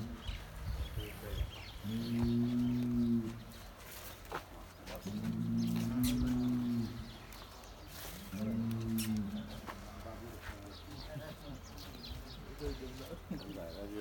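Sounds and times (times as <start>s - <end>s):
bull mooing: 1.9s - 3.4s.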